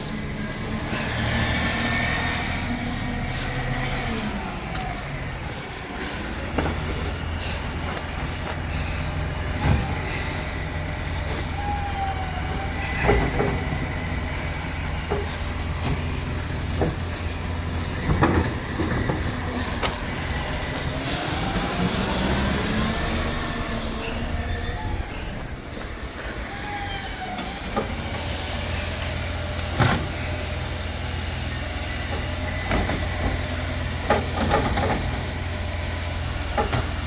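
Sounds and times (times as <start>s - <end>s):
diesel truck engine running: 0.0s - 37.0s
sharp knocks and clunks: 18.0s - 20.9s.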